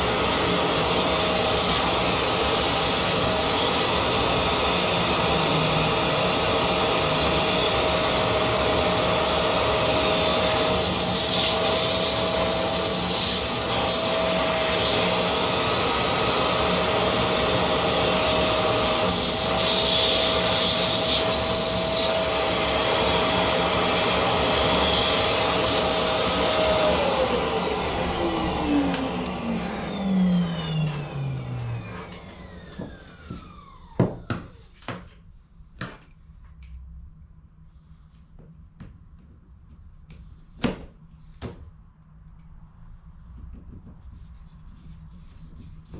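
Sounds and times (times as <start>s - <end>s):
vacuum cleaner motor whining: 0.0s - 34.9s.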